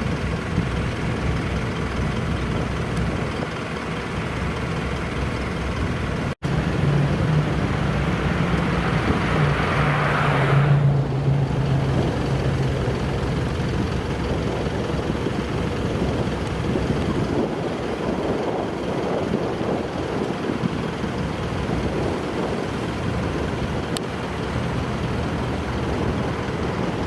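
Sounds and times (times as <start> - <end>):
car engines running: 0.0 - 27.0
car passing by: 6.4 - 14.5.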